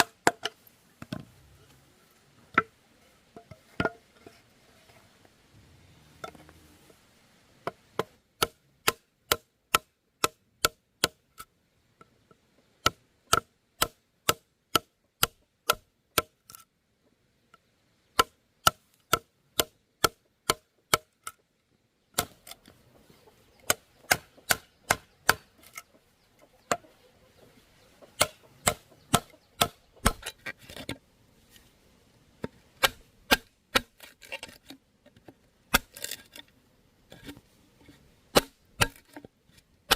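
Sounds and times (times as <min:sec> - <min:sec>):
blade chopping bamboo: 0:07.6 - 0:11.5, 0:12.8 - 0:16.6, 0:18.2 - 0:21.4, 0:22.2 - 0:22.7, 0:23.6 - 0:25.8, 0:28.0 - 0:31.0, 0:32.4 - 0:36.4, 0:38.3 - 0:39.3.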